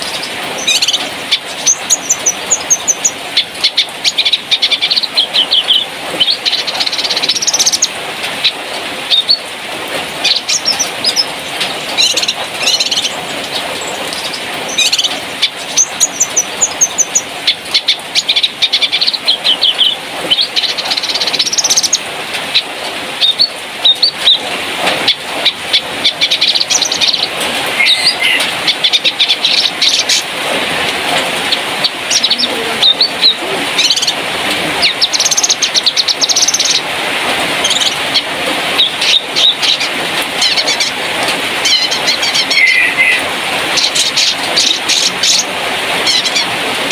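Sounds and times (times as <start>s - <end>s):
songbird chirping and trilling: 0.0s - 9.6s, 10.2s - 30.3s, 31.4s - 34.2s, 34.8s - 36.9s, 37.6s - 41.0s, 41.6s - 46.6s.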